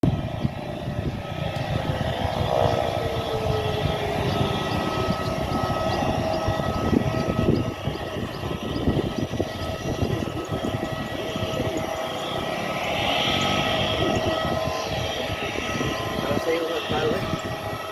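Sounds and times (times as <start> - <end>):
broad rushing noise: 0.0 - 17.9
turboprop engine whine: 0.0 - 17.9.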